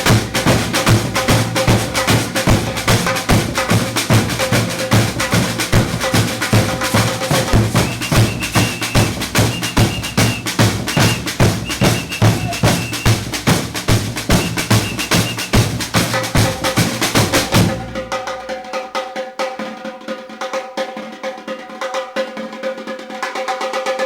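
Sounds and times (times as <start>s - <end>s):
deep bass drum beats: 0.0s - 18.4s
samba drumming: 0.0s - 24.0s
high held notes: 6.9s - 13.2s.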